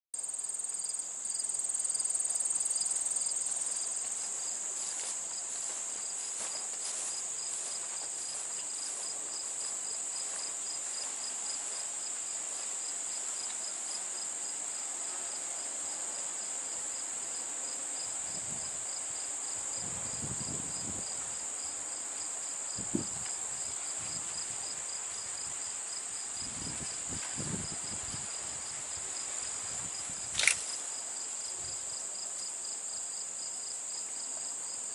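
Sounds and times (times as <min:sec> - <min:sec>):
insects trilling: 0:00.2 - 0:14.3
insect chirping in regular pulse: 0:00.2 - 0:14.9, 0:16.1 - 0:34.8.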